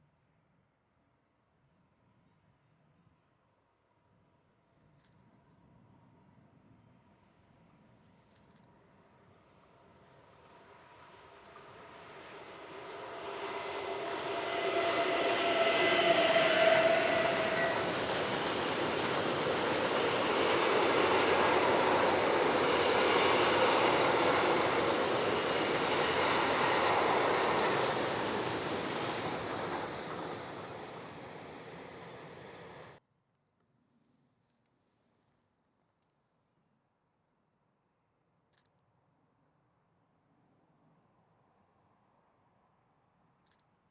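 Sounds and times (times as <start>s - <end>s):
train passing by: 10.4s - 33.0s
steady train tones: 10.8s - 33.0s.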